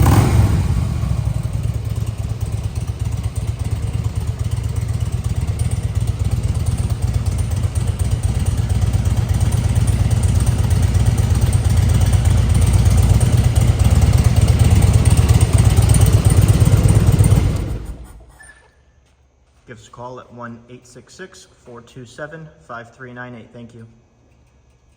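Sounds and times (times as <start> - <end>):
motorcycle engine running: 0.0 - 18.3.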